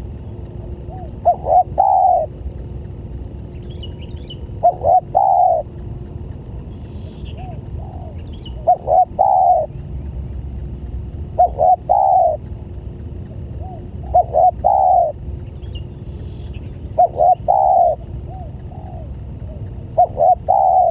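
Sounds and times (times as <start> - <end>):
dove cooing: 0.6 - 2.4, 4.2 - 5.8, 6.9 - 9.8, 11.3 - 12.5, 13.5 - 15.5, 16.6 - 20.9.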